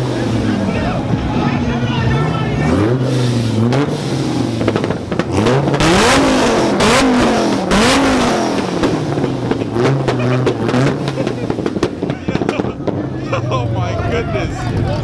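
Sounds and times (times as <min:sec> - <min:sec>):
loud exhaust pops: 0:00.0 - 0:13.2
car engine revving: 0:00.0 - 0:15.0.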